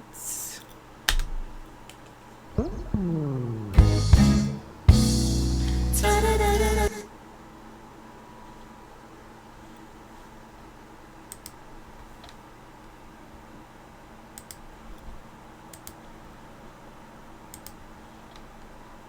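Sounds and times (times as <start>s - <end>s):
faint steady hum: 2.6s - 7.3s.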